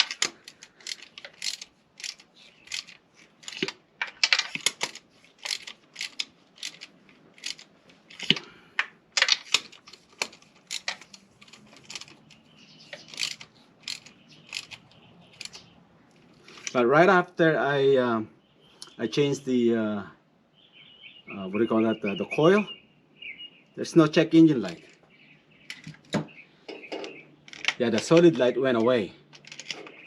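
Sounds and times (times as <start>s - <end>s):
metal objects clicking and clinking: 0.0s - 8.5s, 9.2s - 15.6s, 26.7s - 30.0s.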